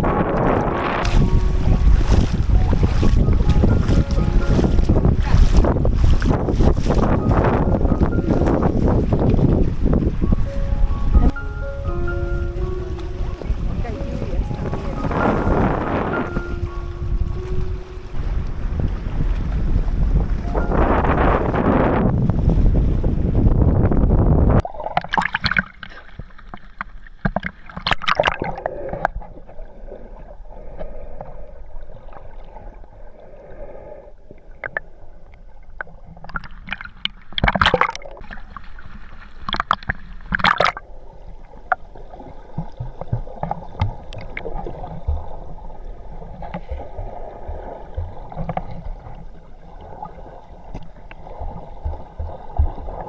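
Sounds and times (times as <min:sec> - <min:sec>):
loud water splashes: 0:00.0 - 0:23.1, 0:24.6 - 0:29.1, 0:36.0 - 0:40.9
water sloshing and gurgling: 0:00.0 - 0:53.0.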